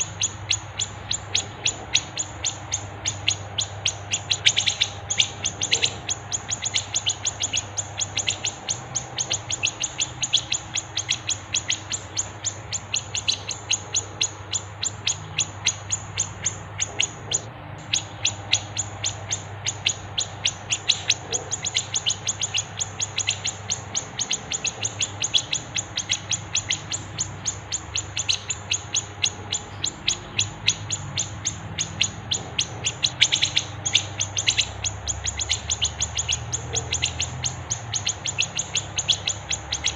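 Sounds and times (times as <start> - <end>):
faint low hum: 0.0 - 39.9
songbirds chirping: 0.0 - 39.9.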